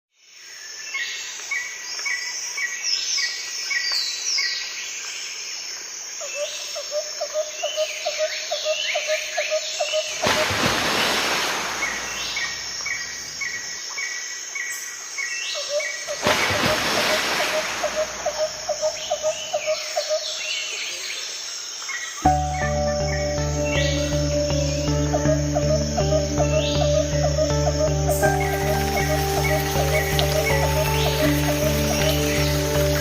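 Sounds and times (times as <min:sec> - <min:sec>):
birds singing and chirping: 0:14.6 - 0:33.0.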